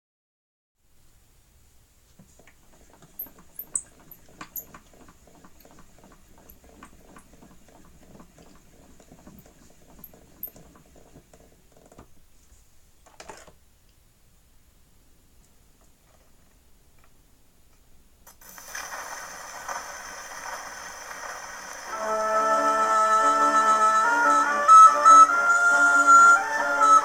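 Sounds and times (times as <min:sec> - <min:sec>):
record surface crackle and clicks: 0:17.0 - 0:22.0.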